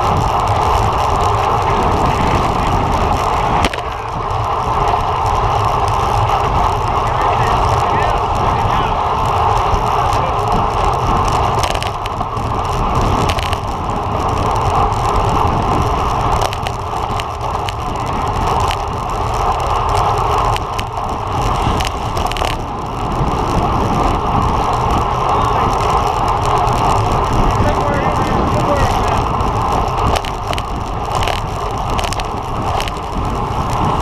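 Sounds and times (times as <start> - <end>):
bicycle road noise: 0.0 - 34.0
rushing wind: 0.0 - 34.0
sharp clicks: 28.8 - 33.8.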